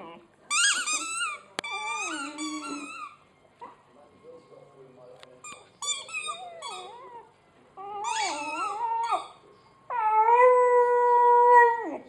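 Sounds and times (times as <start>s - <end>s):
puppy howling: 6.1s - 12.0s.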